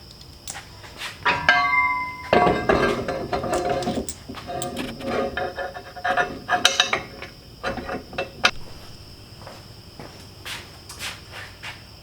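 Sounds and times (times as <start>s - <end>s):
metal parts clanking: 0.5s - 9.3s
insect chirring: 3.5s - 12.0s.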